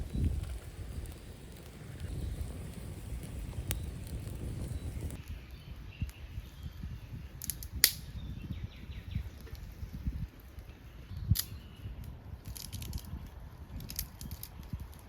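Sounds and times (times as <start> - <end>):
steady low rumble: 0.0 - 5.2.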